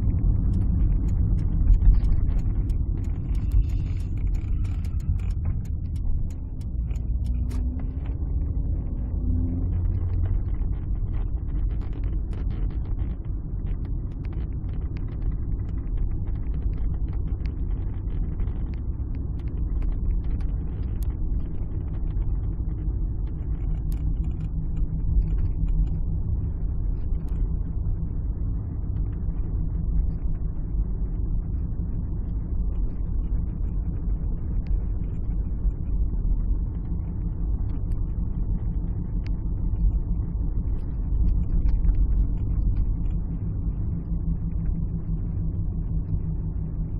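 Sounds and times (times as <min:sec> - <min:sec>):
road noise: 0:00.0 - 0:13.7
car engine rumble: 0:00.0 - 0:46.9.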